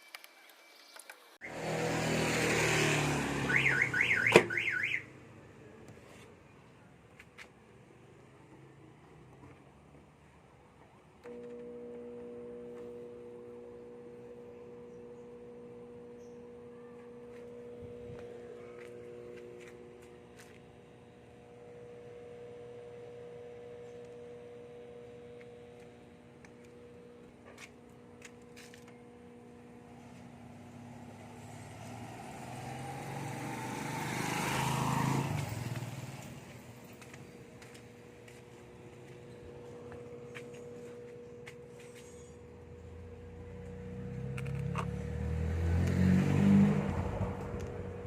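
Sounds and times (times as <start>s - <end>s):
motor vehicle passing by: 1.4s - 5.3s, 16.2s - 20.6s, 29.9s - 48.0s
microwave oven humming: 11.2s - 33.2s, 34.2s - 45.2s.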